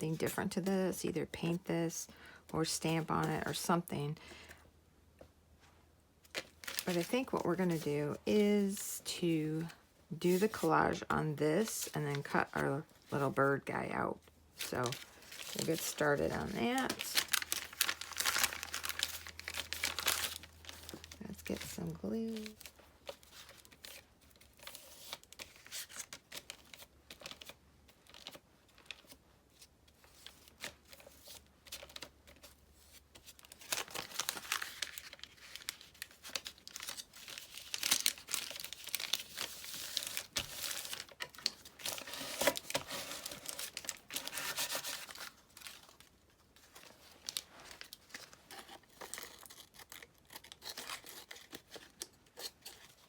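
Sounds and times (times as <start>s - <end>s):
paper tearing and crinkling: 14.8s - 21.2s, 33.4s - 46.0s, 46.8s - 53.0s.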